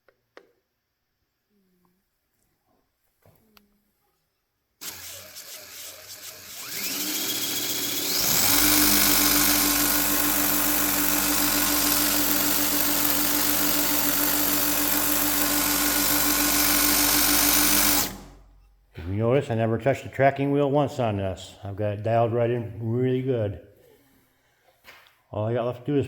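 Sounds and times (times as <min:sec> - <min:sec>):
belt grinder motor whine: 0:04.8 - 0:18.4
belt hissing: 0:04.8 - 0:18.4.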